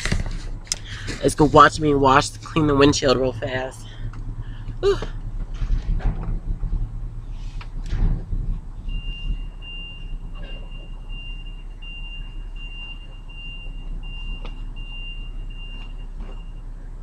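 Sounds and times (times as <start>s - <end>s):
idling engine hum: 0.0s - 17.0s
reversing alarm beeping: 8.8s - 16.8s.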